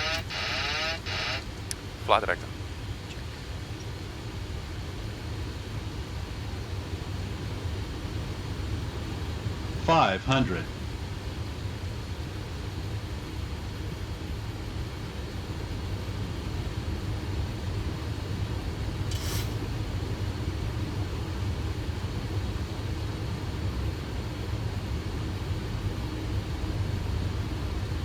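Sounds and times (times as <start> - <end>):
low rumble of airflow and engines: 0.0 - 28.0
brief hiss: 19.1 - 19.7.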